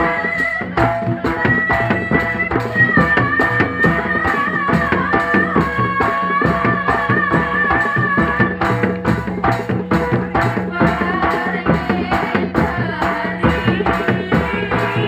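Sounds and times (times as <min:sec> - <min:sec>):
drums and percussion beat: 0:00.0 - 0:15.0.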